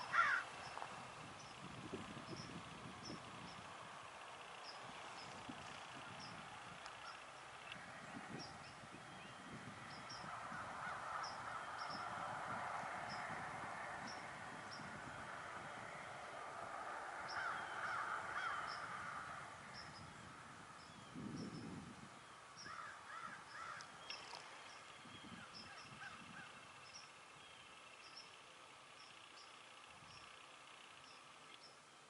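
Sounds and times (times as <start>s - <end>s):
crows cawing: 0.0s - 0.6s, 10.3s - 12.1s, 17.2s - 19.5s, 22.6s - 24.0s.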